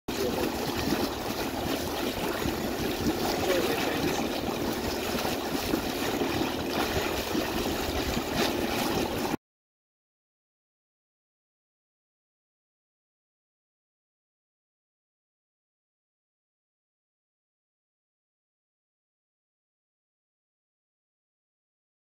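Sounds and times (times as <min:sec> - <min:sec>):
water rushing and trickling: 0:00.1 - 0:09.4.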